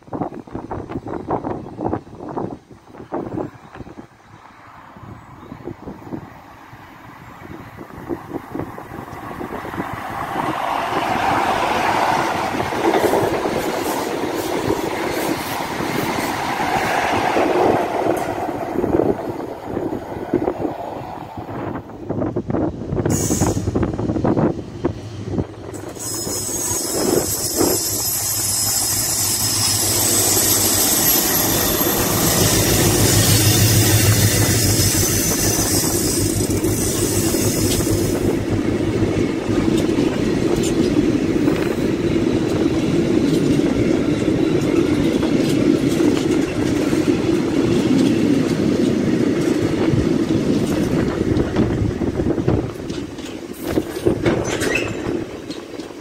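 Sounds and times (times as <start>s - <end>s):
freight train passing: 0.0s - 56.0s
wheel squeal: 25.8s - 38.2s, 54.4s - 55.2s
wagons clattering over rails: 52.5s - 56.0s.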